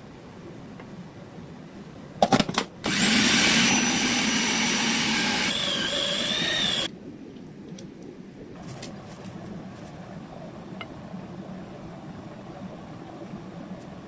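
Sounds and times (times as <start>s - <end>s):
blender motor whining: 2.9s - 6.9s.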